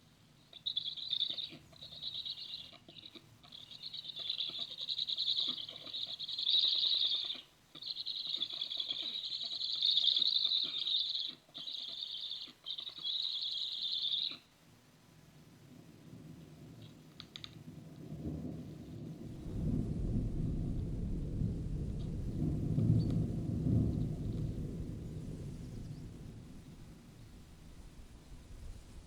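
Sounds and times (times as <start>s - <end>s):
bird trilling: 0.6s - 14.5s
raindrops pattering: 16.1s - 29.0s.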